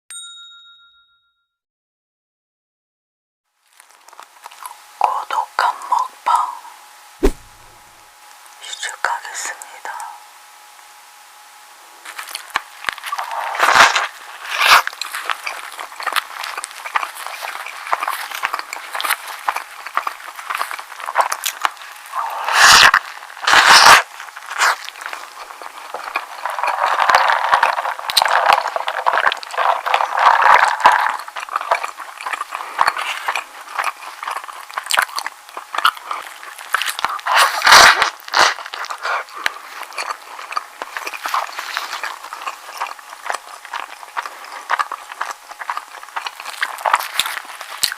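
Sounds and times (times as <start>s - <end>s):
wrapper crinkling and crackling: 3.6s - 5.2s, 12.1s - 47.9s.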